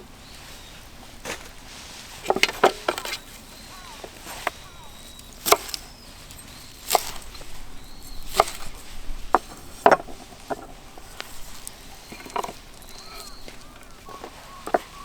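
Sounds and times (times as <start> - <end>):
wood being chopped: 2.2 - 3.2, 3.8 - 5.9, 6.8 - 15.0.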